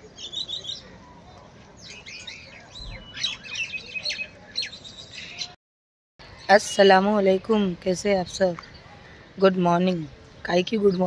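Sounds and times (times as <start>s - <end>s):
birds chirping and whistling: 0.0s - 5.6s.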